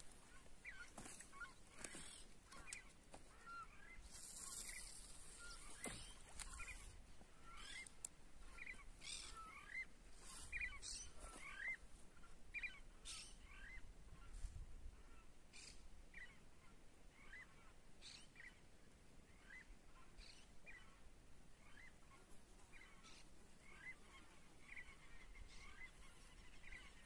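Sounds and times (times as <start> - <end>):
light outdoor hiss: 0.0 - 13.8
faint bird chirps: 0.2 - 18.6.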